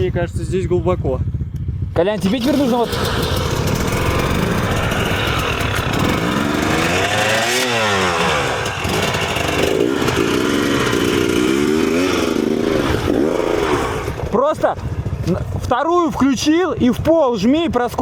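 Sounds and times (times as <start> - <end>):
motorcycle engine revving: 0.0 - 17.1.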